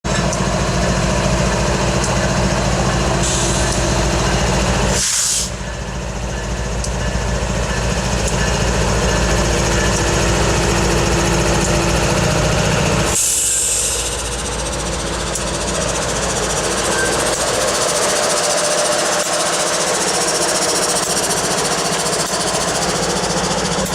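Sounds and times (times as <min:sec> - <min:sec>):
locomotive engine running: 0:00.0 - 0:23.9
air brake hisses: 0:03.2 - 0:03.8, 0:04.9 - 0:05.6, 0:13.1 - 0:14.4.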